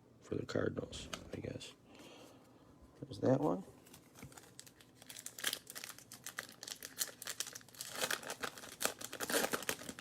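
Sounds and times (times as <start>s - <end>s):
wrapper crinkling and tearing: 3.8s - 10.0s.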